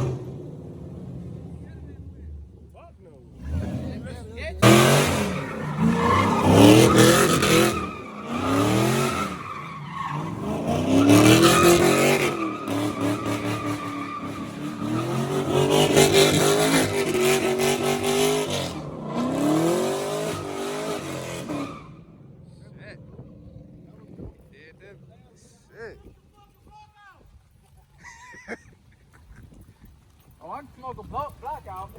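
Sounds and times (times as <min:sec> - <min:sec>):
car engine revving hard: 0:00.0 - 0:02.0, 0:03.3 - 0:22.3
tires squealing and skidding: 0:03.3 - 0:24.2.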